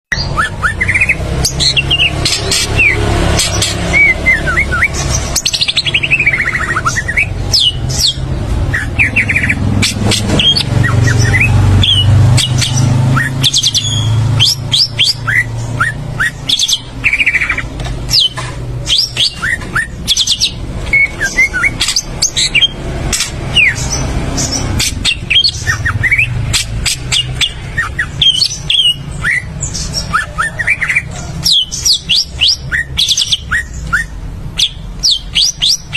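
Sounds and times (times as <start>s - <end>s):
songbird singing: 0.1s - 35.9s.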